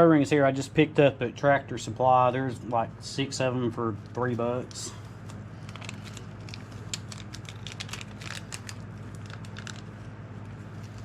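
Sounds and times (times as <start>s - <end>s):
steady low hum: 0.0s - 11.0s
plastic packet crinkling: 5.6s - 11.0s.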